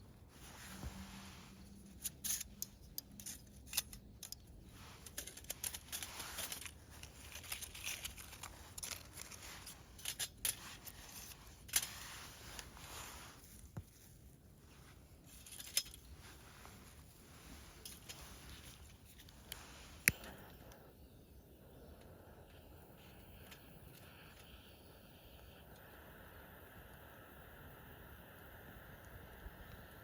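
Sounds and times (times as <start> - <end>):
rustling: 0.0 - 20.1
light metal clicks and clinks: 1.8 - 12.0.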